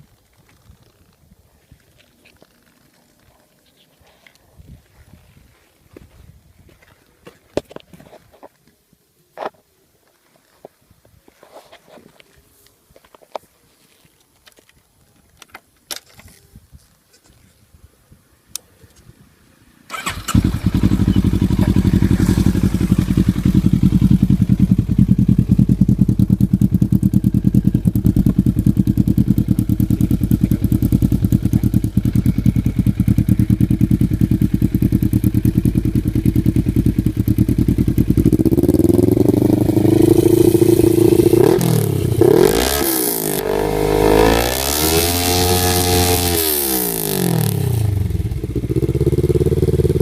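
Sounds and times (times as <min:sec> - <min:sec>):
motorcycle engine idling: 0:19.9 - 0:42.4, 0:47.5 - 0:50.0
motorcycle engine revving: 0:19.9 - 0:50.0.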